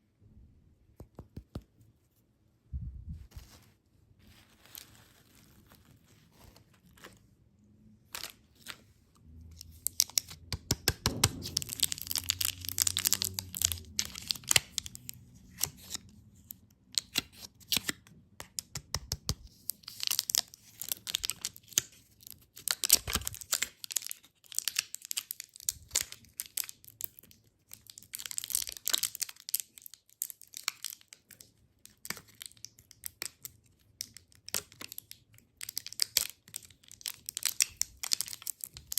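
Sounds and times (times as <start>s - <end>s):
plastic wrappers crinkling: 11.4s - 18.0s, 19.6s - 38.9s.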